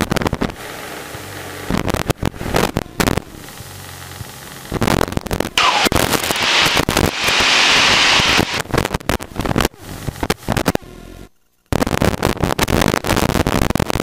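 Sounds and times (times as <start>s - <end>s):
crackling radio static: 0.0s - 0.6s, 1.6s - 14.0s
loud hiss: 5.6s - 8.6s.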